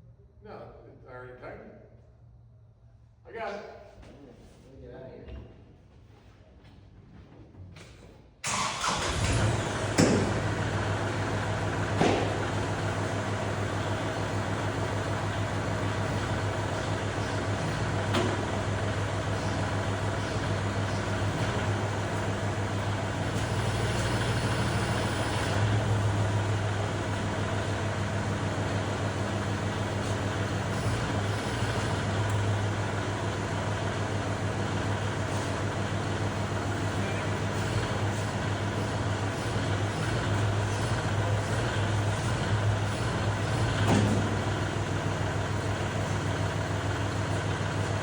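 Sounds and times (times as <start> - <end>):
tractor engine running: 8.4 - 48.0
click: 32.2 - 32.4.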